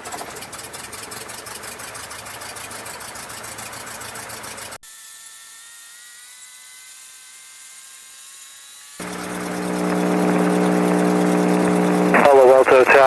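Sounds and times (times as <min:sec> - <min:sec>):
aircraft engine running: 0:09.0 - 0:13.0
high-pitched electrical whine: 0:09.0 - 0:13.0
loud low hum: 0:09.0 - 0:13.0.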